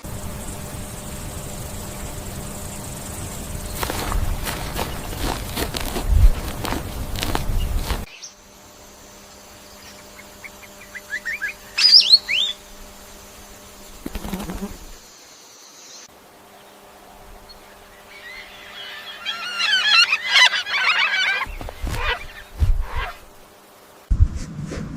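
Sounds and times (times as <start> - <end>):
birds chirping: 0.0 - 8.4, 9.3 - 12.7, 15.6 - 23.3
rustling noise: 3.5 - 8.1, 21.4 - 23.4.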